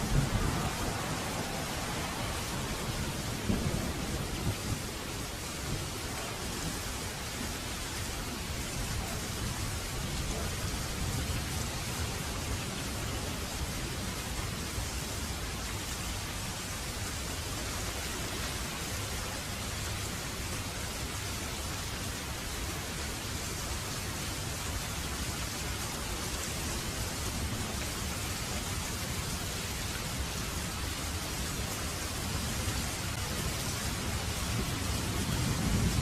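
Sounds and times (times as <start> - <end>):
thunder rumbling: 0.0 - 6.7, 33.0 - 36.0
heavy rain falling: 0.0 - 36.0.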